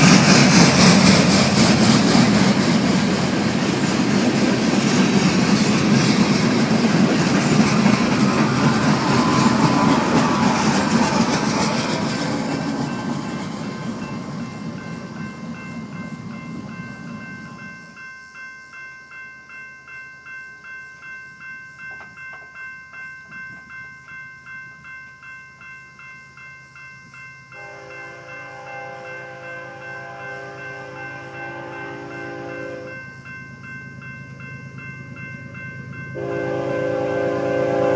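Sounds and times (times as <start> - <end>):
freight train rumbling past: 0.0 - 19.2, 27.1 - 37.9
railroad crossing bell ringing: 0.0 - 37.9.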